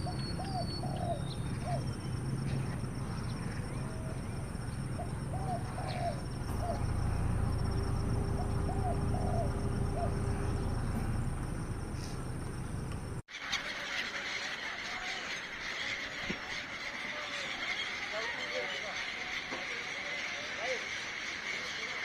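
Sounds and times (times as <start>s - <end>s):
birds calling: 0.0s - 22.0s
steady low rumble: 1.3s - 13.2s.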